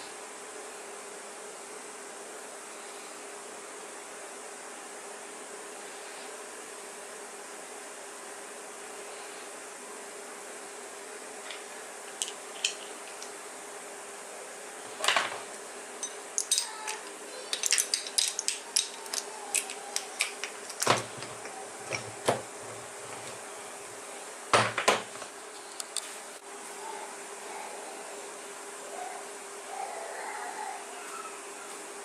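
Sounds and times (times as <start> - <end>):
faint hum: 0.0 - 32.0
metal parts knocking: 11.5 - 13.3, 16.0 - 22.4
metal tools clinking: 11.5 - 13.3, 16.0 - 22.1.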